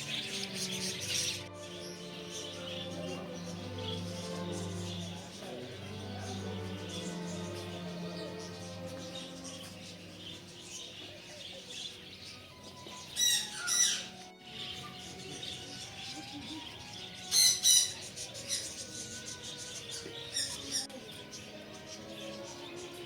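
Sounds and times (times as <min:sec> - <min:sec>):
soft bird chatter: 0:00.0 - 0:23.0
harsh bird squawks: 0:12.3 - 0:20.8.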